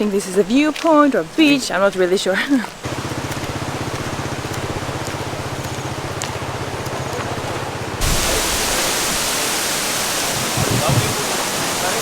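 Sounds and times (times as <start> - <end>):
small engine idling: 2.8 - 8.1
steady rushing noise: 2.8 - 12.0.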